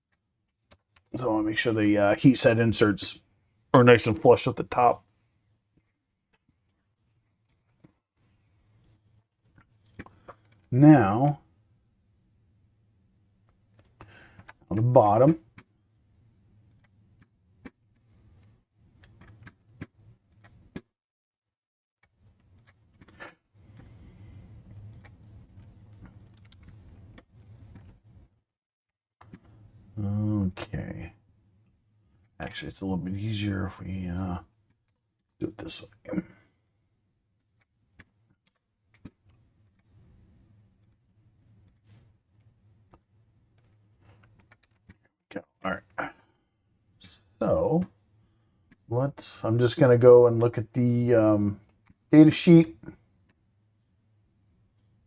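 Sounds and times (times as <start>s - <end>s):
quiet low hum: 0.1s - 20.8s, 22.0s - 28.4s, 29.2s - 55.0s
computer mouse and keyboard clicks: 16.6s - 20.9s, 22.0s - 28.1s, 37.5s - 41.0s, 41.6s - 45.2s.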